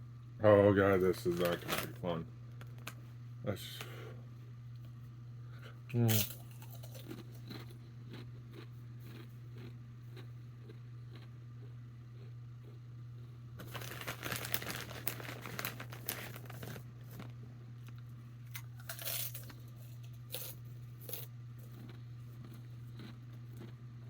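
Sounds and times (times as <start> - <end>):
chip bag crinkling: 1.0 - 2.0, 6.1 - 11.2, 13.6 - 23.7.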